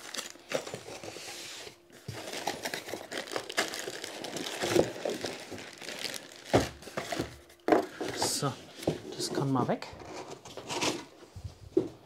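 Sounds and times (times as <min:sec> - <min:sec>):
wrapping crinkling and rustling: 0:00.0 - 0:09.6.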